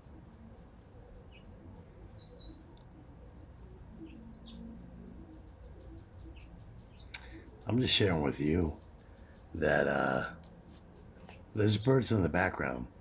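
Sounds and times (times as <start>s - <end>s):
small birds chirping: 0.0s - 13.0s
faint high ticking: 6.8s - 7.8s.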